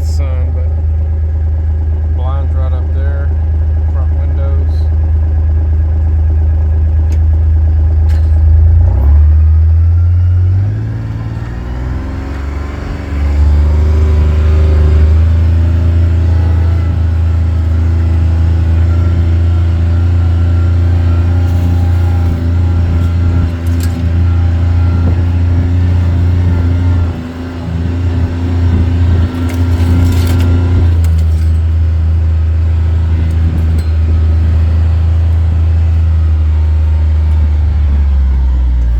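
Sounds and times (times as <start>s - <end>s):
vehicle engine running: 0.0s - 38.9s
vehicle knocks and rattles: 12.1s - 38.9s.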